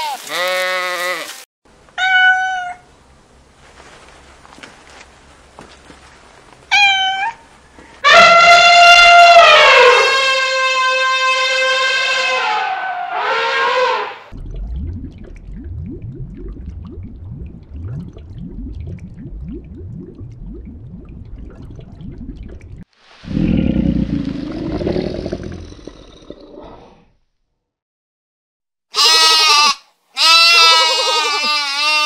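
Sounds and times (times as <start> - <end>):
low rumble with rising sweeps: 14.4 - 22.8
sheep bleating: 29.0 - 32.0.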